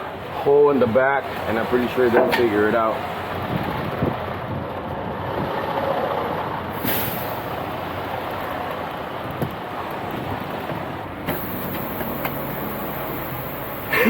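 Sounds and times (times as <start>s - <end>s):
heavy truck running: 0.0s - 14.0s
air hiss: 6.8s - 7.5s, 11.3s - 14.0s.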